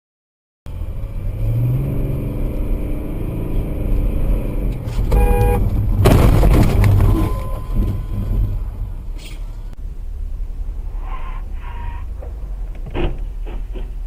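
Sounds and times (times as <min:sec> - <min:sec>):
car engine: 0:00.7 - 0:14.0
road rumble: 0:00.7 - 0:14.0
car horn beep: 0:05.1 - 0:05.7, 0:07.1 - 0:08.4.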